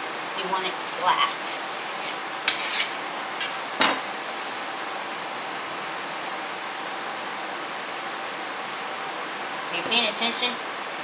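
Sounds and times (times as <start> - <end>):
putty knife scraping: 0.8 - 3.6.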